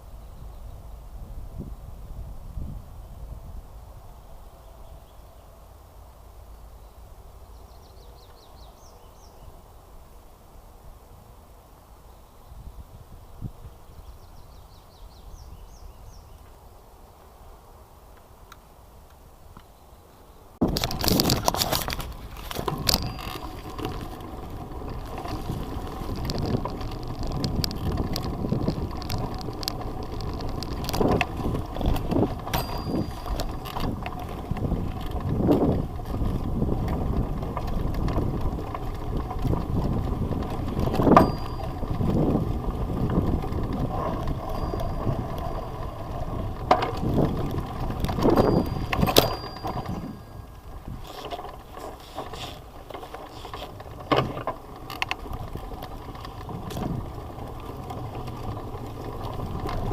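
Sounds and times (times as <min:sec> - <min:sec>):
bicycle rattling: 0:20.6 - 0:59.9.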